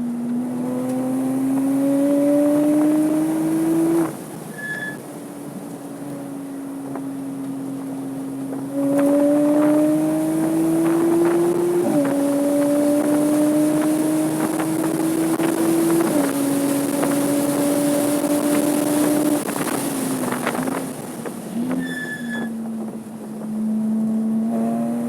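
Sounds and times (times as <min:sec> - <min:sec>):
car engine accelerating: 0:00.0 - 0:25.0
wind noise: 0:06.8 - 0:25.0.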